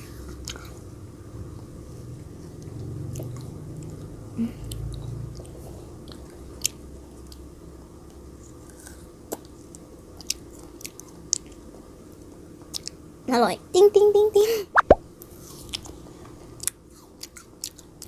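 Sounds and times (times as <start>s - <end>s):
child chewing frozen grapes: 2.6s - 7.5s, 8.1s - 11.8s, 16.6s - 18.0s.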